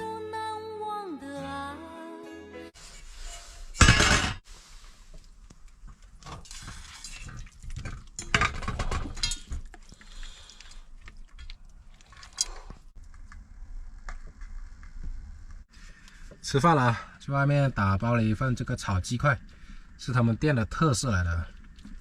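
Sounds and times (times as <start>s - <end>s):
food containers clinking: 7.7s - 9.7s.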